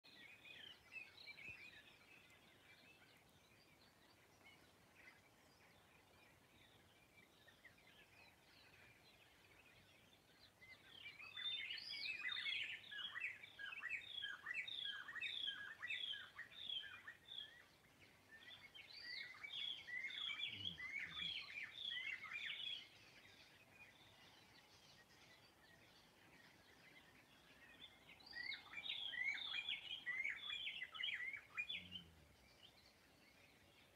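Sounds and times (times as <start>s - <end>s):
faint bird chirping: 0.0s - 33.9s.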